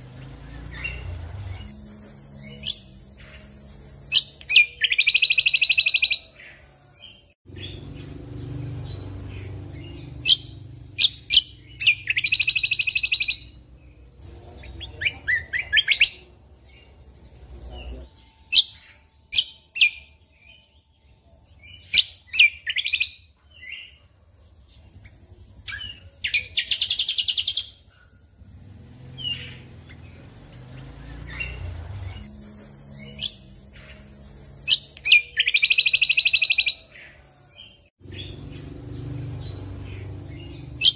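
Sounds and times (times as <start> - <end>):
sharp bird chip notes: 0.0 - 24.0, 29.2 - 37.2
songbird trilled phrases: 0.1 - 24.0, 25.0 - 28.1, 28.9 - 40.9.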